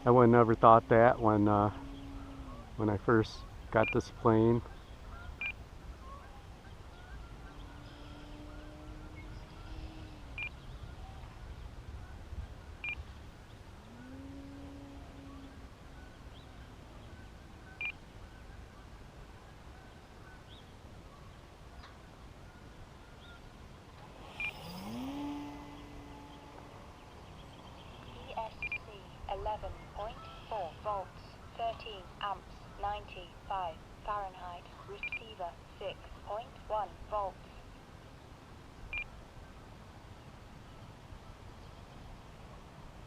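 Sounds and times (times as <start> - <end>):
model plane electric motor: 24.0 - 27.2
short high electronic beeps: 24.3 - 25.0.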